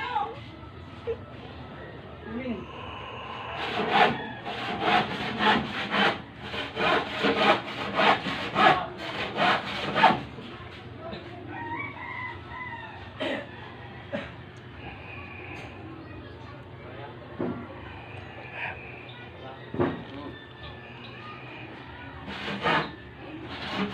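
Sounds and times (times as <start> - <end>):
rooster crowing: 2.9 - 4.8, 11.5 - 14.3, 19.4 - 22.1
hand tool rasping: 3.5 - 10.2, 22.2 - 23.9.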